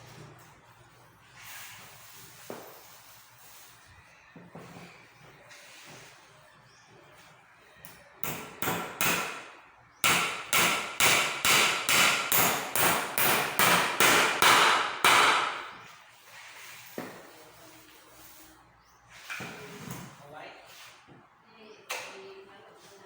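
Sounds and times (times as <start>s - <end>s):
hammer strikes with ring: 8.2s - 15.6s.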